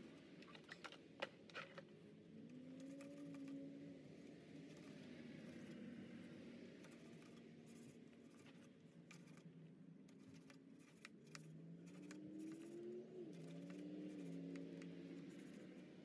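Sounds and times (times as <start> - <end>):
faint scratching: 6.8 - 16.0.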